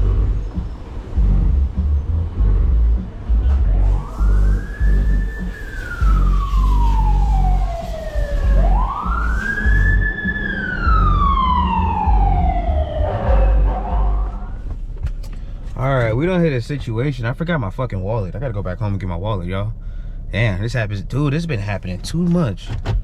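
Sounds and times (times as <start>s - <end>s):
pulsing low rumble: 0.0s - 22.8s
emergency siren wailing: 2.4s - 14.7s.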